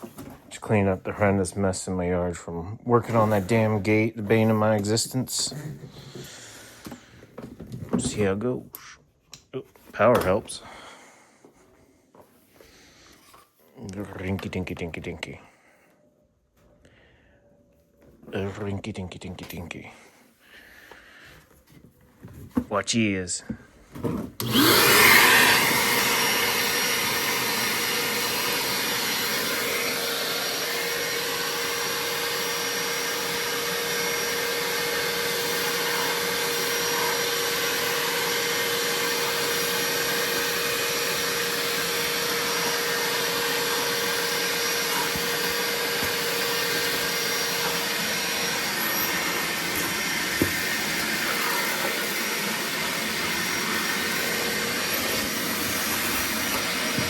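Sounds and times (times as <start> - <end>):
shop vacuum running: 3.0 - 8.3, 23.9 - 57.0.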